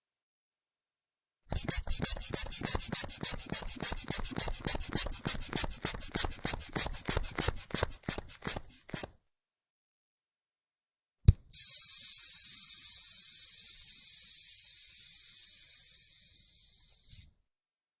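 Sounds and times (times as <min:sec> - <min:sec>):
release valve click: 0:11.3 - 0:17.3
air hissing from cuff: 0:11.5 - 0:17.3.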